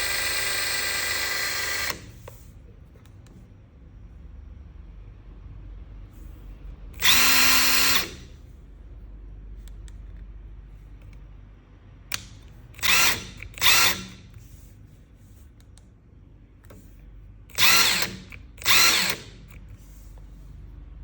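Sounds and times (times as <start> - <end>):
impact wrench bursts: 0.0 - 2.2, 7.0 - 8.3, 12.8 - 14.3, 17.5 - 19.6.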